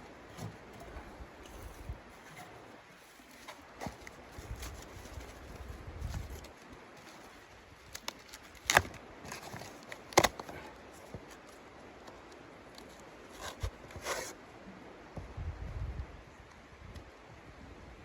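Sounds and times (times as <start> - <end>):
clicks and handling noises: 0.0 - 14.4.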